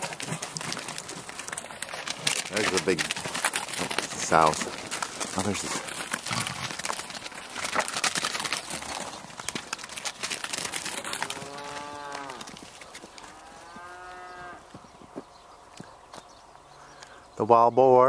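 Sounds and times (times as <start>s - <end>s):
footsteps crunching in snow: 0.0s - 16.6s
cattle mooing: 11.0s - 12.6s, 13.2s - 14.7s.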